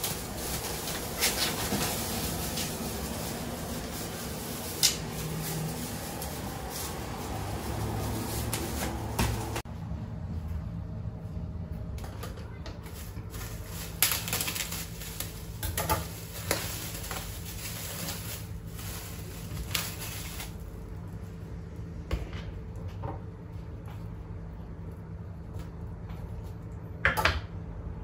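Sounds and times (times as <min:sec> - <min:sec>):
objects being handled: 0:00.0 - 0:09.6
steady low hum: 0:00.0 - 0:28.0.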